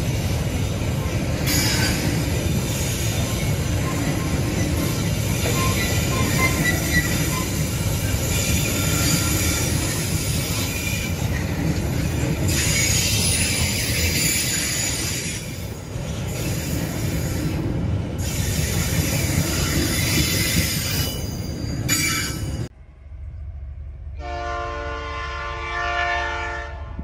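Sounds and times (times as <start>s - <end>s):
freight cars rumbling on rails: 0.0s - 27.0s
high-pitched wheel squeals: 3.2s - 11.5s.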